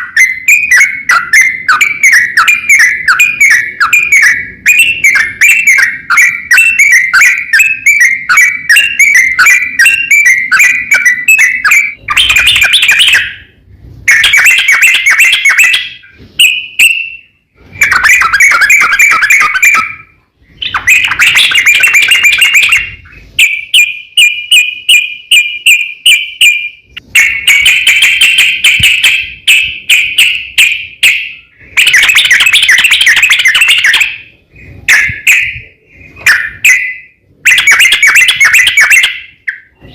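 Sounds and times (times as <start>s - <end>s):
bird singing bubbling notes: 0.0s - 26.6s.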